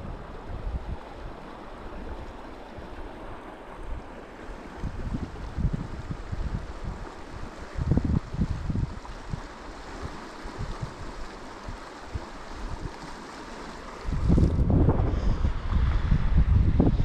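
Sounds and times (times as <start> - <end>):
wind buffeting microphone: 0.0 - 3.0, 3.7 - 17.0
river water flowing: 0.0 - 17.0.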